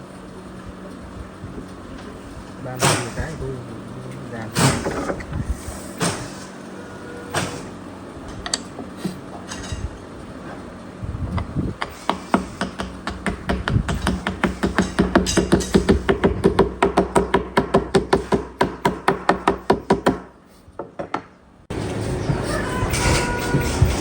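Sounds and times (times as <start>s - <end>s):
steady noise: 0.0s - 20.4s
hammer striking wood: 11.8s - 21.3s.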